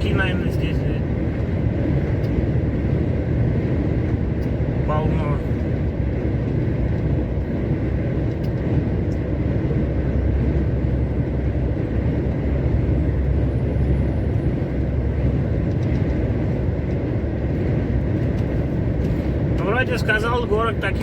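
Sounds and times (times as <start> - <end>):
truck engine and road noise: 0.0 - 21.0.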